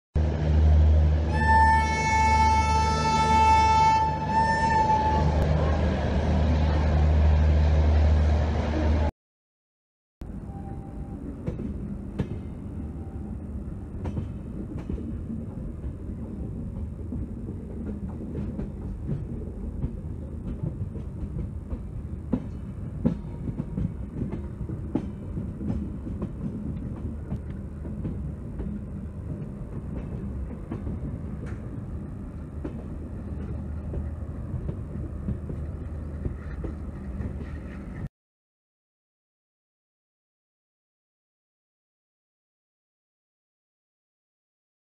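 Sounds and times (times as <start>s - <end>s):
train wheels rumbling on track: 0.2s - 9.1s, 10.2s - 38.1s
wheels clunking over rail joints: 13.9s - 38.1s.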